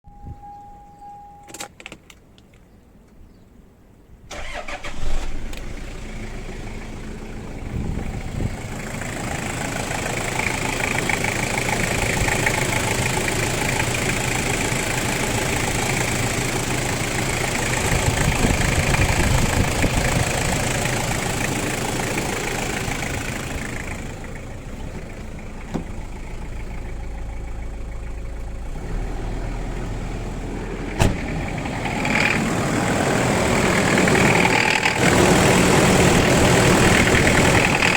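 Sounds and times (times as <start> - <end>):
diesel engine knocking: 7.3 - 28.7, 30.7 - 37.9.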